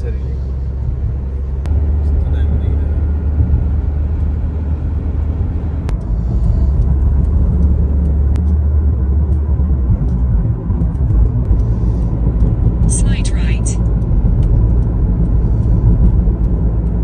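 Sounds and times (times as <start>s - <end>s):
car road noise rumble: 0.0s - 17.0s.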